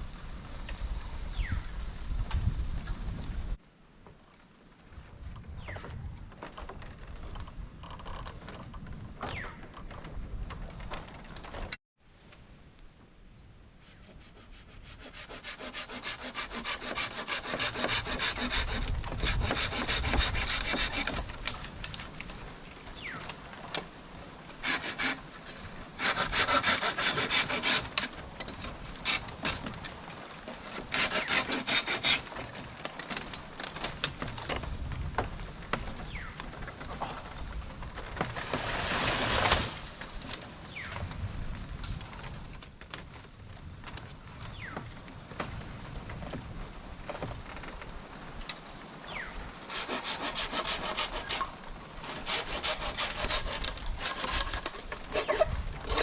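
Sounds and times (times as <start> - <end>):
hand saw cutting wood: 14.0 - 21.3, 24.6 - 28.2, 29.0 - 29.7, 30.6 - 32.4, 49.7 - 56.0.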